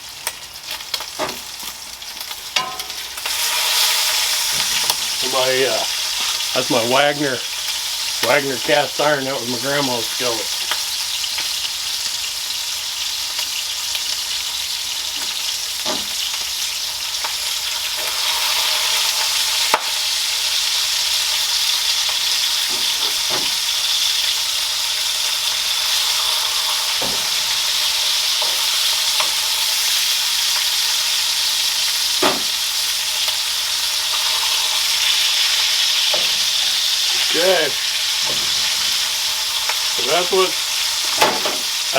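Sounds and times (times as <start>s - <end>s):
bacon sizzling in a skillet: 0.0s - 41.9s.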